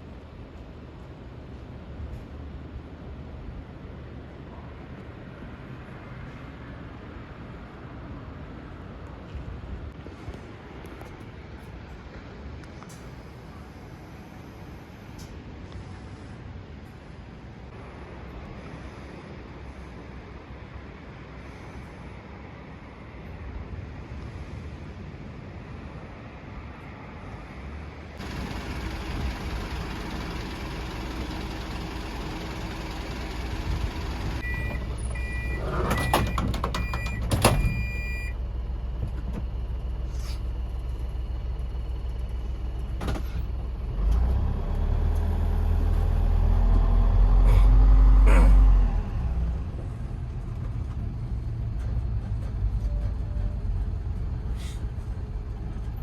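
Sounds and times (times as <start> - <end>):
railcar engine running: 0.0 - 56.0
two-tone electronic warning beeps: 34.4 - 38.4
hisses: 54.5 - 54.9.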